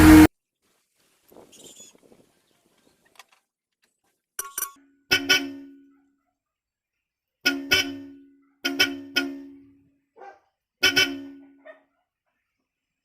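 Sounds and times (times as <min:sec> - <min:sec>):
car horn honks: 0:05.1 - 0:06.0, 0:07.4 - 0:09.9, 0:10.8 - 0:11.7.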